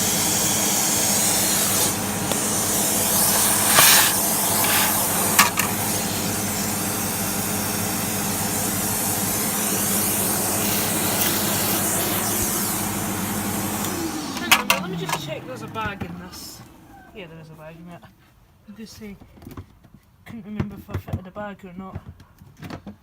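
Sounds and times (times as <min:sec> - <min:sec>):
vacuum cleaner running: 0:00.0 - 0:17.3.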